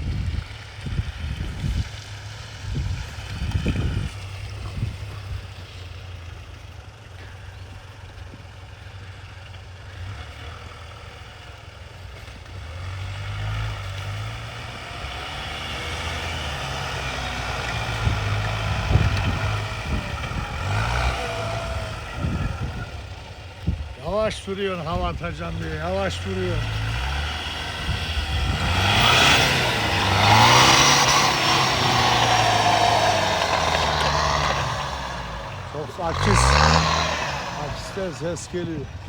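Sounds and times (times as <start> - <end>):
pickup engine revving: 12.3 - 39.0.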